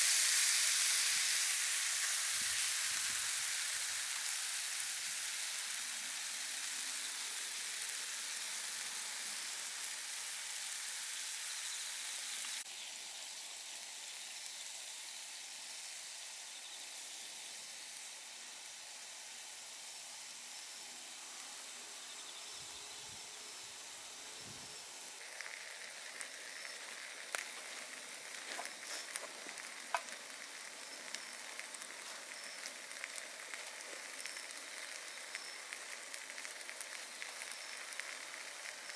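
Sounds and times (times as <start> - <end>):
steak sizzling: 0.0 - 16.4, 23.2 - 38.9
burning wood crackling and popping: 25.2 - 38.9.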